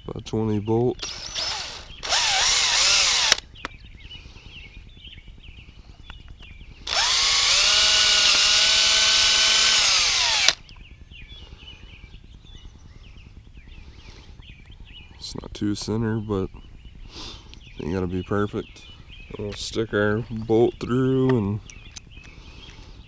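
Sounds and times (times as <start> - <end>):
electric drill boring plastic: 1.0 - 3.4, 6.9 - 10.6.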